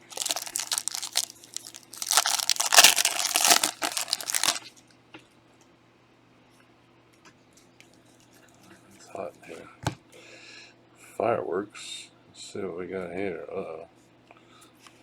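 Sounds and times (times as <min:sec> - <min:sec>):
foil wrapper tearing and crinkling: 0:00.0 - 0:04.7.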